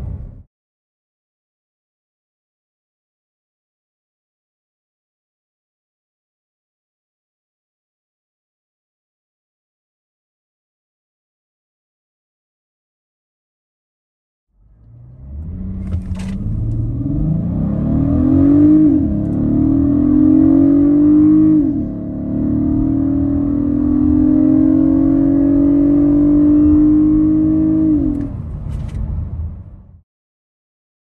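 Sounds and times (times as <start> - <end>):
car engine accelerating hard: 14.6 - 29.6.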